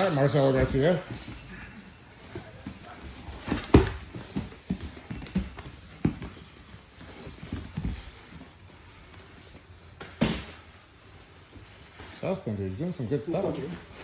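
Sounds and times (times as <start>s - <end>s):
bodies thudding on mats: 0.0s - 10.8s.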